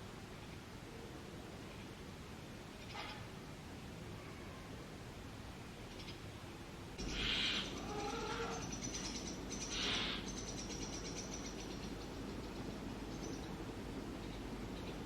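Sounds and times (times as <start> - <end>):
nestlings raspy hisses: 7.0 - 8.7.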